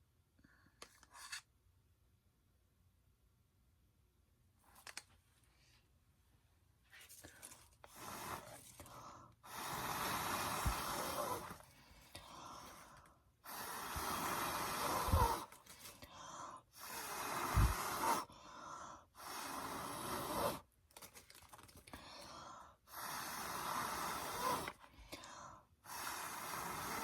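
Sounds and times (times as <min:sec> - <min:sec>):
air blowing in hissing gusts: 0:09.5 - 0:11.5, 0:13.5 - 0:15.5, 0:16.8 - 0:18.2.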